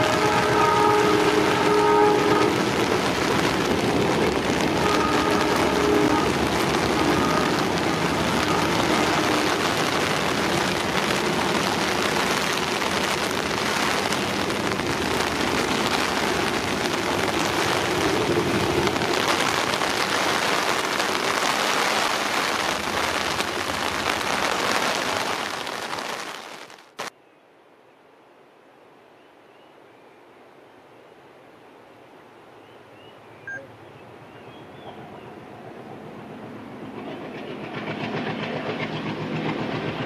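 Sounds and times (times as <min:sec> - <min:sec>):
train running on track: 0:00.0 - 0:25.2, 0:33.5 - 0:40.0.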